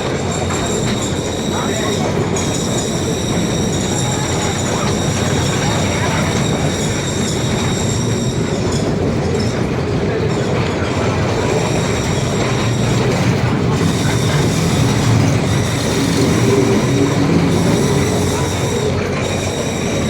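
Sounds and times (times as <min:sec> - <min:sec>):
high wheel squeal: 0:00.0 - 0:20.0
rail car rumbling: 0:00.0 - 0:20.0.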